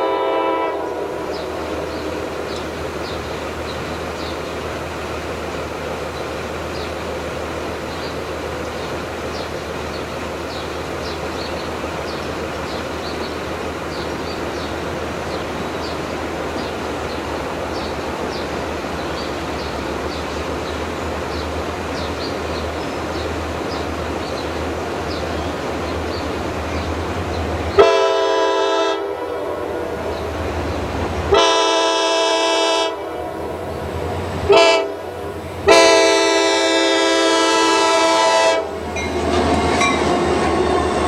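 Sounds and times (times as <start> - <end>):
train horn blast: 0.0 - 2.6, 27.6 - 30.6, 31.2 - 41.0
train rumbling and clicking: 0.0 - 41.0.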